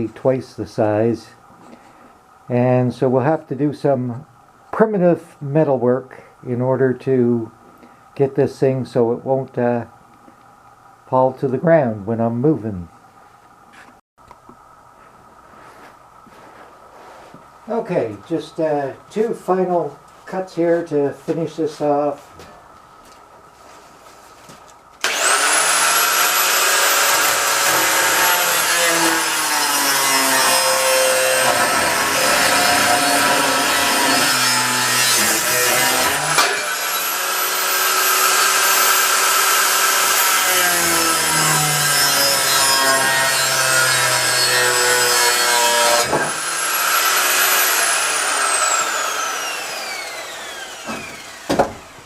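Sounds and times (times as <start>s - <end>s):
angle grinder motor whine: 25.0s - 35.4s, 46.0s - 52.0s
grinder cutting rasp: 25.0s - 52.0s.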